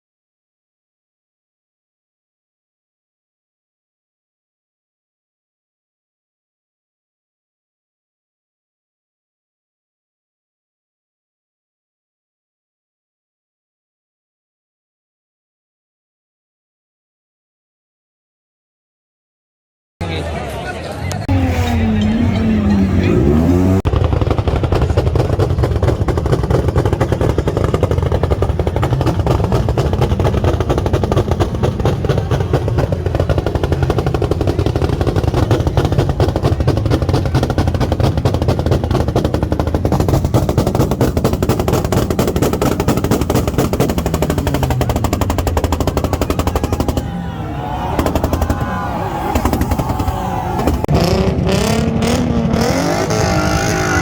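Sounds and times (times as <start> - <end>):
loud car engine rattling exhaust: 21.3 - 54.0.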